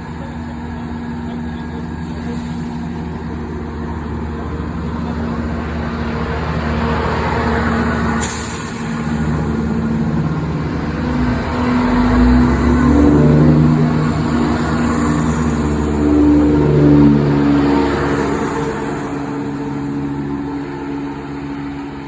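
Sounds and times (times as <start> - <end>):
diesel train engines running: 0.0 - 22.0
sharp hiss of air: 8.2 - 9.6.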